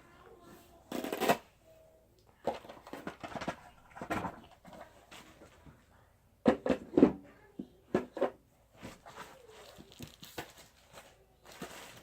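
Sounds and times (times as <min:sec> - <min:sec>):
objects knocking and clunking: 0:02.3 - 0:05.8, 0:06.4 - 0:12.0.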